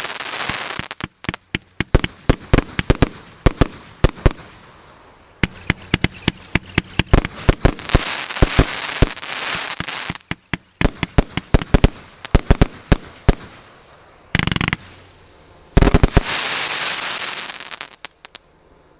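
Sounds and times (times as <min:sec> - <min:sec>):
firework cake firing volleys: 0:00.0 - 0:04.8, 0:05.4 - 0:15.1, 0:15.7 - 0:18.3
firework crackling: 0:00.0 - 0:18.5.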